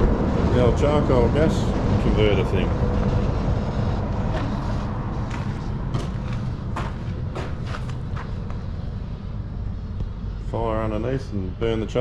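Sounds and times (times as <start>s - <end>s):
steady low rumble: 0.0s - 12.0s
crunching footsteps: 4.2s - 8.7s.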